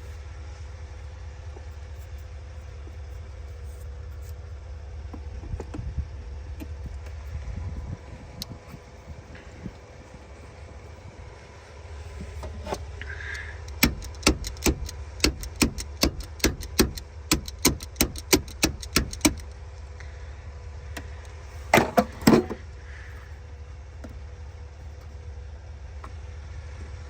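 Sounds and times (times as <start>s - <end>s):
ratchet wrench clicking: 13.6s - 19.6s
loud knocks: 13.8s - 19.5s.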